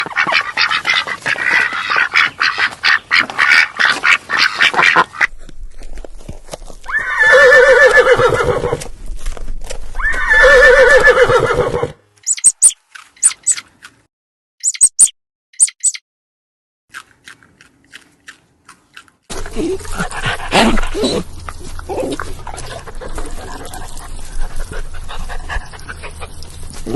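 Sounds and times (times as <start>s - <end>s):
high squeaks and chirps: 12.2s - 13.7s, 14.6s - 16.0s.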